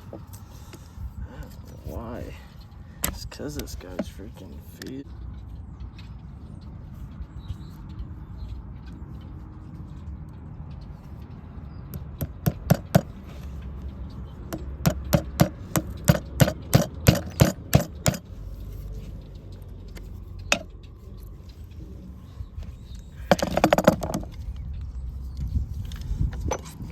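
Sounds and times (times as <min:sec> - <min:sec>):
hammer striking: 0:11.9 - 0:13.2, 0:14.5 - 0:18.3.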